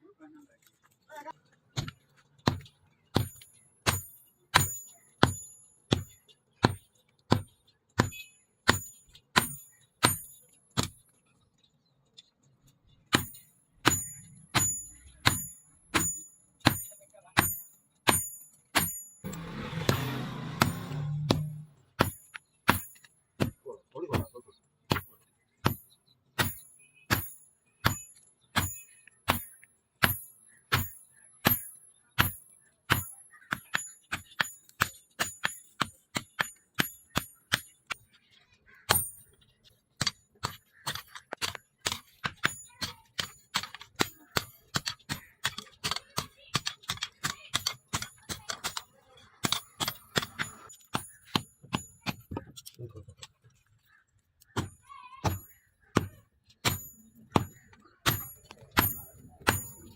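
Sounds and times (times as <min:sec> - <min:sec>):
hammer blows on steel over anvil: 0:13.2 - 0:23.0.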